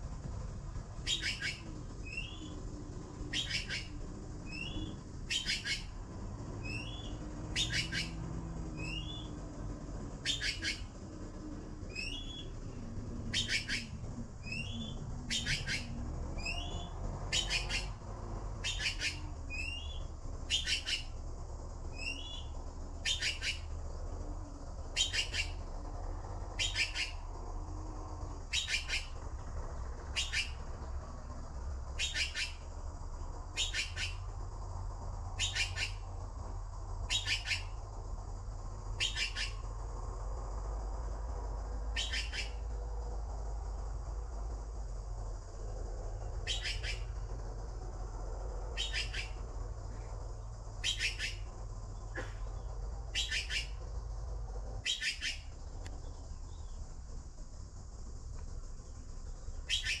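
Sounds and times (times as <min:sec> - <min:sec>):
bird calling: 0:01.0 - 0:08.2, 0:08.8 - 0:09.4, 0:10.2 - 0:18.0, 0:18.6 - 0:21.2, 0:21.9 - 0:23.8, 0:24.9 - 0:25.7, 0:26.5 - 0:27.3, 0:28.5 - 0:29.2, 0:30.1 - 0:30.6, 0:32.0 - 0:32.6, 0:33.6 - 0:34.3, 0:35.4 - 0:36.1, 0:37.1 - 0:37.8, 0:39.0 - 0:39.6, 0:41.9 - 0:42.6, 0:46.4 - 0:47.1, 0:48.7 - 0:50.1, 0:50.8 - 0:53.8, 0:54.8 - 0:56.8, 0:59.6 - 1:00.0.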